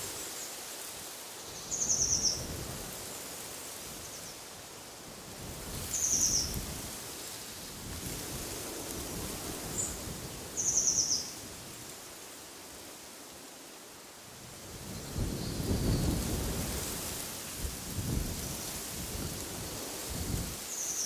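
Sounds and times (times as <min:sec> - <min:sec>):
wind with rumbling gusts: 0:01.8 - 0:11.9, 0:14.4 - 0:20.7.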